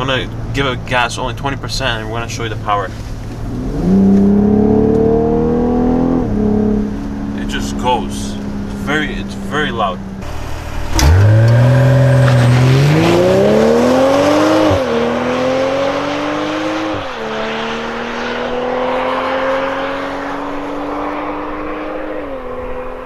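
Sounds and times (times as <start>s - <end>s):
car engine accelerating hard: 0.0s - 23.0s
gear upshifts: 1.7s - 23.0s.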